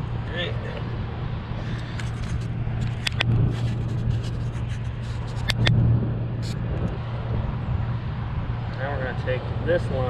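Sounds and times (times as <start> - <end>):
steady low hum: 0.0 - 9.8
clicks of parts being handled: 2.0 - 3.3.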